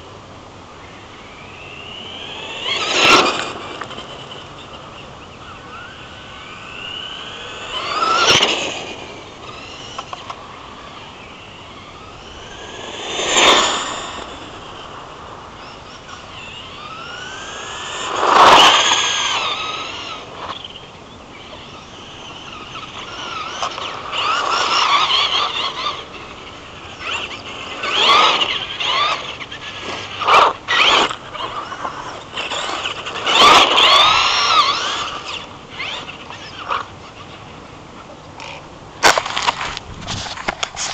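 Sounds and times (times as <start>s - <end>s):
rc truck motor whining: 0.8s - 37.6s.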